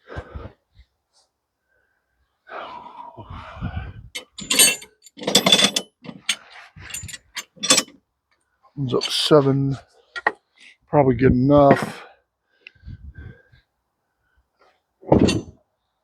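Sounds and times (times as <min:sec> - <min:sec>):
metallic clanks and knocks: 0:04.2 - 0:07.9, 0:15.1 - 0:15.6.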